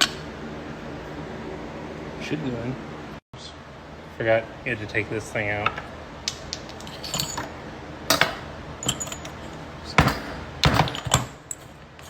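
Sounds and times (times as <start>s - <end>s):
small metal parts clinking: 6.7s - 12.0s.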